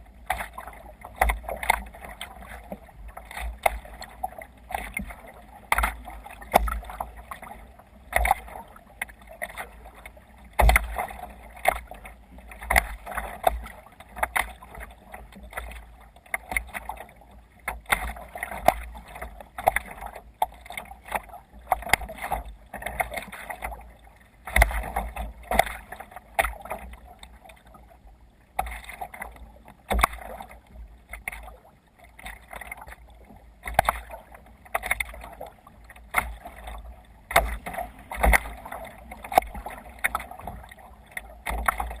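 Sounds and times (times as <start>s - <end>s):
water splashing against kayak hull: 0.0s - 42.0s.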